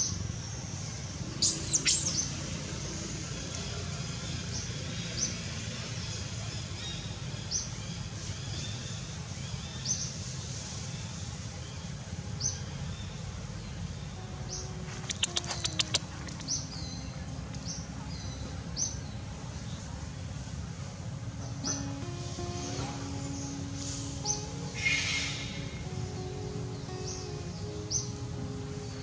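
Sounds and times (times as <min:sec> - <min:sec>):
bird chirping: 0:00.0 - 0:05.4, 0:12.4 - 0:20.3, 0:21.3 - 0:29.0.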